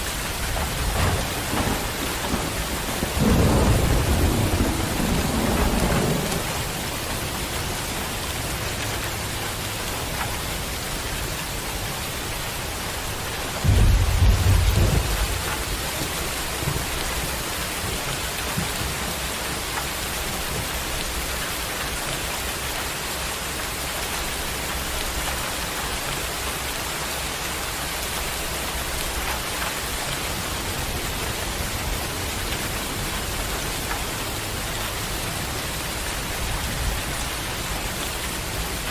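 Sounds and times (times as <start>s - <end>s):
thunder rumbling: 0.0s - 8.5s, 12.9s - 19.6s
heavy rain: 0.0s - 38.9s.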